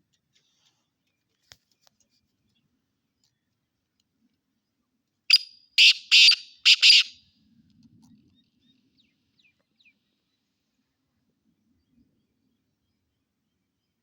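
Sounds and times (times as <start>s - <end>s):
partridge calling: 5.3s - 7.2s.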